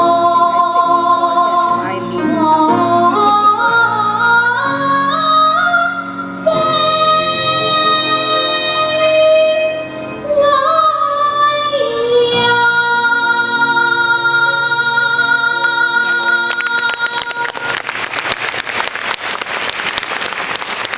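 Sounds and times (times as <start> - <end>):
girl singing: 0.0 - 17.4
musical accompaniment: 0.0 - 18.2
audience applause: 16.1 - 20.9.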